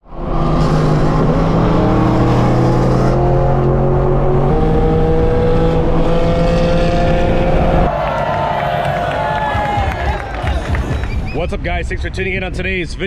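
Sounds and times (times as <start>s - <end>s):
car engine accelerating: 0.1s - 9.7s.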